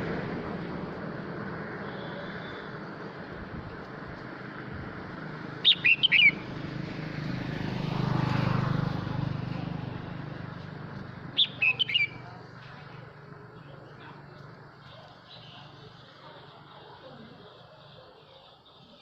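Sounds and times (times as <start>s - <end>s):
vehicle passing: 0.0s - 18.0s
bird singing sharp notes: 5.6s - 6.4s, 11.4s - 12.2s.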